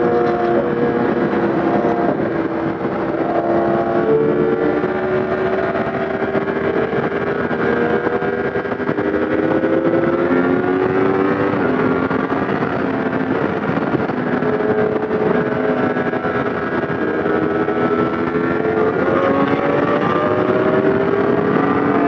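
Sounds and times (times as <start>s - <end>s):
motorcycle engine running: 0.0s - 22.0s
wind rushing: 0.0s - 22.0s.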